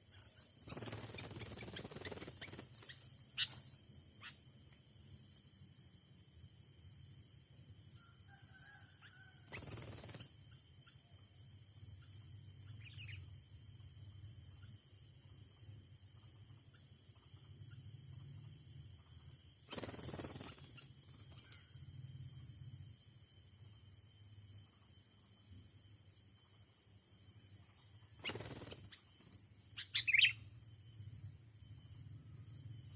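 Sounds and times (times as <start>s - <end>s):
bird chirps: 0.0s - 4.4s, 12.6s - 13.4s, 27.6s - 29.1s, 29.7s - 30.6s
insects droning: 0.0s - 32.9s.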